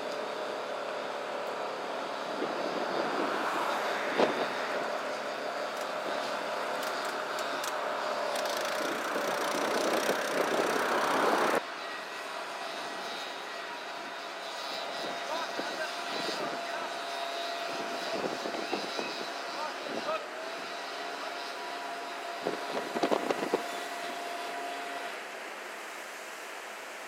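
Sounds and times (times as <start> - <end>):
gusting wind: 0.0 - 27.0.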